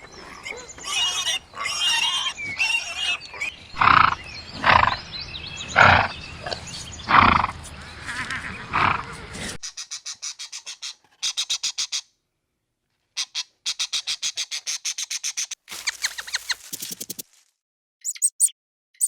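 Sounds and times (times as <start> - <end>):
bird chattering call: 0.0 - 8.7
bird chirps: 0.0 - 8.7, 13.7 - 17.2, 18.0 - 19.0.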